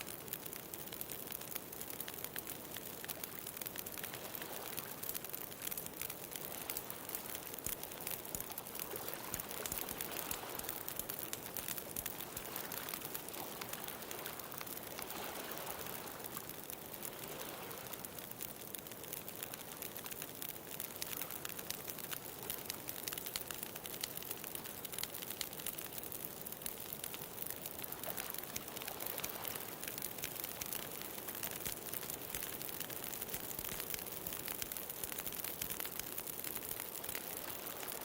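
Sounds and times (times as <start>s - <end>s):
bonfire crackling and popping: 0.0s - 38.0s
ocean waves: 8.8s - 16.4s, 17.1s - 18.0s.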